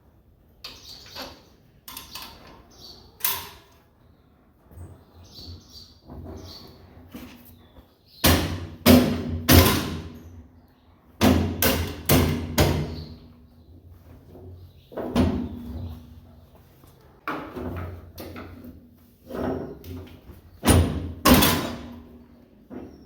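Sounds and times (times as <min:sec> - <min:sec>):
sharp knocks and bangs: 0:08.2 - 0:10.2, 0:11.2 - 0:13.2, 0:20.6 - 0:22.1.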